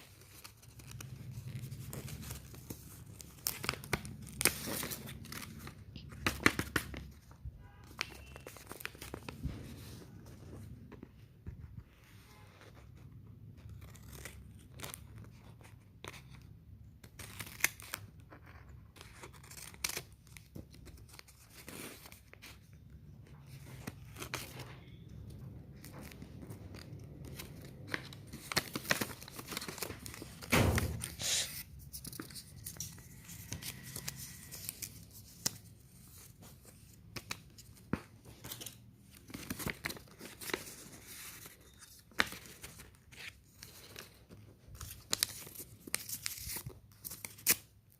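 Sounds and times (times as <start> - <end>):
loud packaging rip: 28.6 - 31.6.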